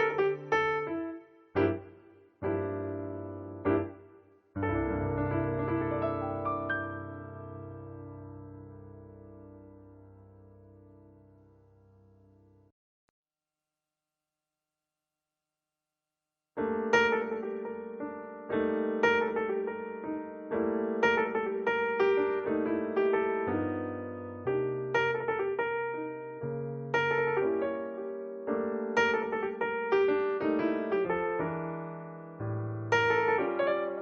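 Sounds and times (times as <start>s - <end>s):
piano music: 0.0s - 12.7s, 16.6s - 34.0s.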